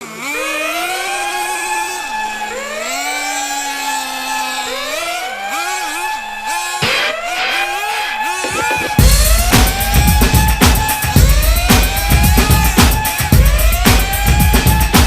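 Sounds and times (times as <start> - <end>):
engine revving up: 0.0 - 15.0.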